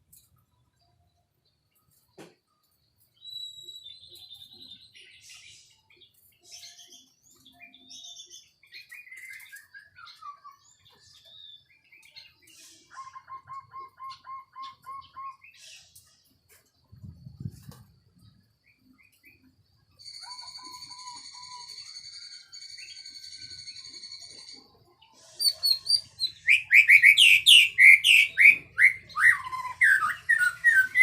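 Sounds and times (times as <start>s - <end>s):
bird singing whistles: 3.2s - 5.4s, 7.6s - 10.8s, 12.6s - 15.6s, 20.0s - 24.5s, 25.4s - 31.0s.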